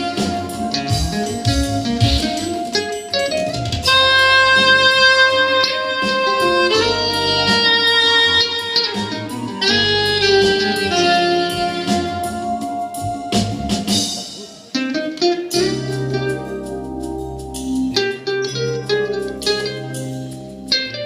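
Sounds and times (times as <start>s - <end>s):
saxophone holding long notes: 0.0s - 2.7s, 3.8s - 13.8s
guitar accompaniment: 0.0s - 21.0s.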